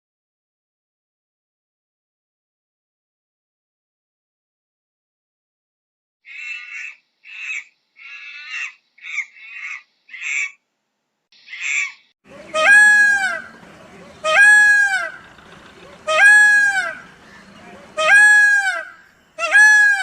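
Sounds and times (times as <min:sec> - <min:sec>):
drawn-out bird calls: 0:06.3 - 0:10.6, 0:11.4 - 0:20.0
fowl squawking: 0:06.3 - 0:10.6, 0:11.5 - 0:20.0.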